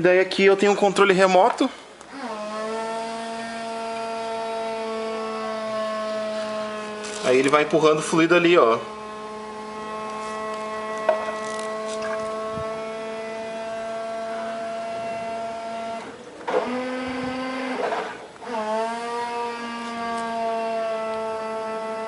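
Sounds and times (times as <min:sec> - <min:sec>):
electric pump motor humming: 0:02.0 - 0:22.0.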